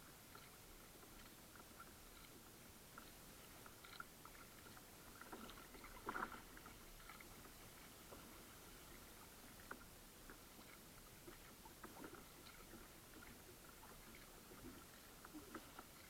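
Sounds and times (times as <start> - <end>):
light ticks: 0.0 - 8.3
low steady hiss: 0.0 - 16.0
water drips and splashes: 3.0 - 16.0.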